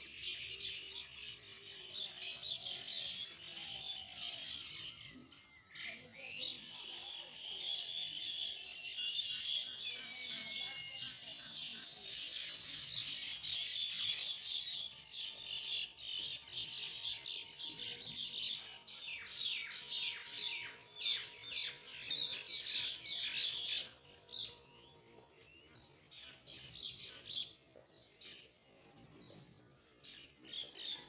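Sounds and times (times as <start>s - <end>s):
weaver birds chattering: 0.0s - 24.6s.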